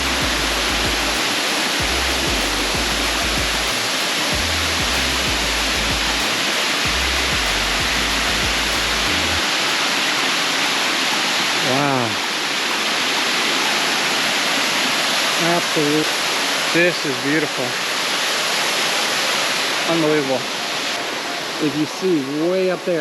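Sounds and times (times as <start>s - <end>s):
background music bass notes: 0.0s - 9.4s
waterfall roaring: 0.0s - 23.0s.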